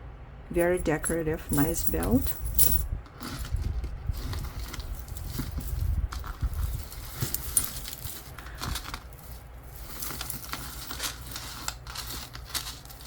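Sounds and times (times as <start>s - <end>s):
metal jewelry clinking: 0.5s - 13.0s.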